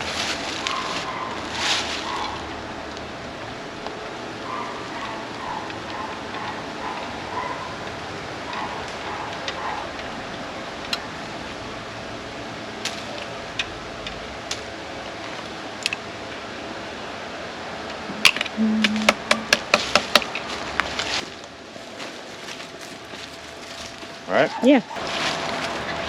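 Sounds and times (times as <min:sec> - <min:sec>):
sharp knocks or clicks: 0:18.2 - 0:20.4.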